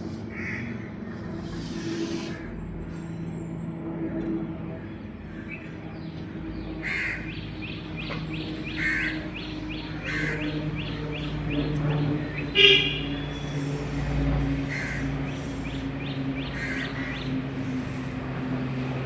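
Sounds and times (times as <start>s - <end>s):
low hum of city background: 0.0s - 19.0s
crows cawing: 0.3s - 0.8s, 6.8s - 7.2s, 8.8s - 9.2s, 10.0s - 10.4s, 14.7s - 15.6s, 16.6s - 17.2s.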